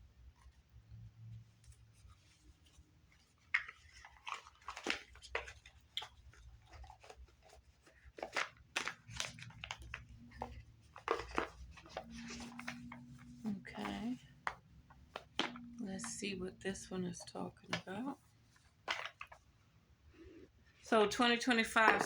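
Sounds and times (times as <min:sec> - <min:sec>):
cards shuffling: 0:03.3 - 0:16.3, 0:17.0 - 0:19.5, 0:21.6 - 0:22.0.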